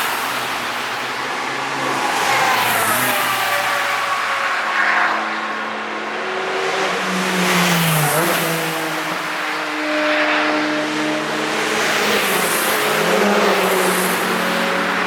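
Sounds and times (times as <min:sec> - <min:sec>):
race cars passing: 0:00.0 - 0:15.0.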